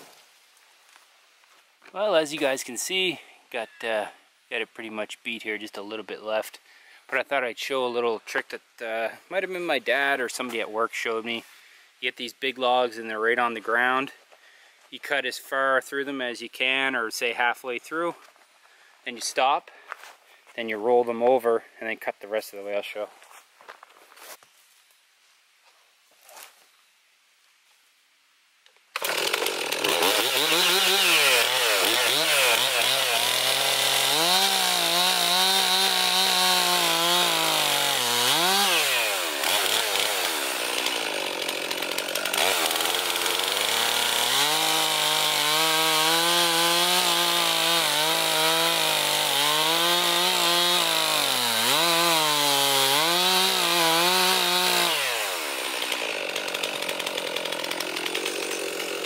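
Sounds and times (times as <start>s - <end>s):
chainsaw cutting a log: 29.0s - 59.0s.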